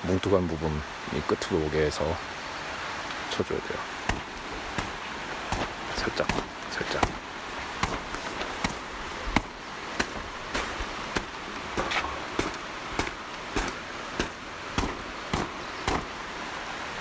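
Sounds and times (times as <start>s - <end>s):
tent pole tapping a wet tarp: 3.9s - 17.0s.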